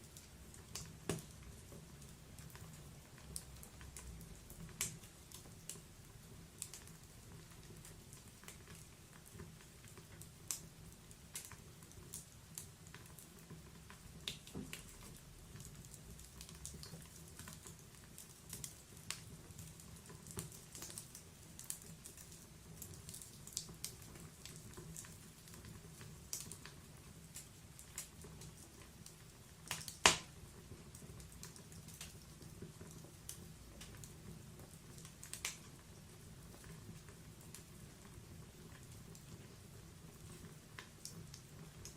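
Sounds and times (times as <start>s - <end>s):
wood fire crackling: 0.0s - 41.9s
loud fire pop: 30.0s - 30.3s.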